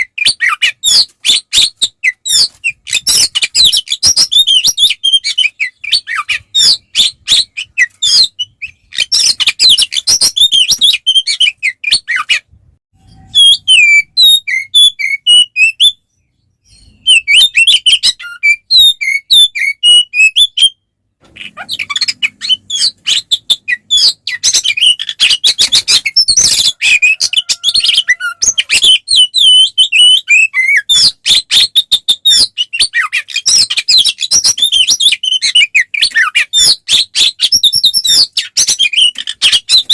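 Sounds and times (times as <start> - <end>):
bird singing loudly: 13.0 - 20.8, 21.4 - 39.9.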